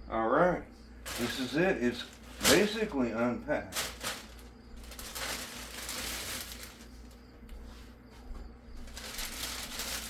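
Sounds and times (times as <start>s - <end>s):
plastic and foam packing rustling: 1.0s - 7.2s, 8.8s - 10.0s.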